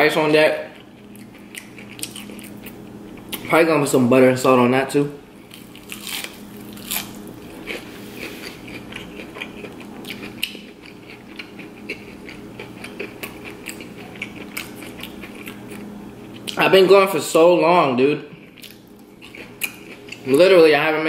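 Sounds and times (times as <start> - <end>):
steady low hum: 0.0 - 21.0
chewing crispy fried food: 0.7 - 3.6, 5.4 - 16.6, 18.4 - 20.6.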